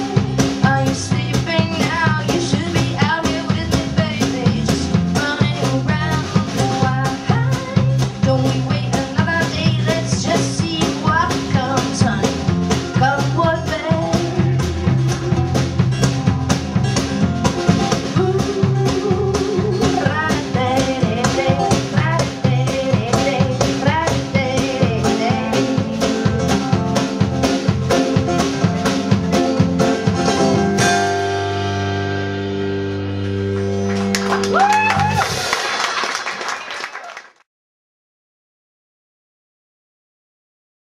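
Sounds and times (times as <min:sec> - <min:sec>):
drum kit beat: 0:00.0 - 0:32.0, 0:33.4 - 0:36.4
electric guitar bending notes: 0:11.6 - 0:35.5.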